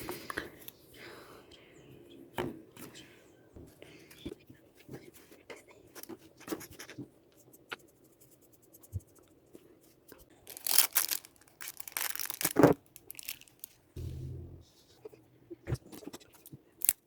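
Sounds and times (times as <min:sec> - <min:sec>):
crinkling and small clicks: 0:10.5 - 0:13.8
low hum: 0:14.0 - 0:14.7.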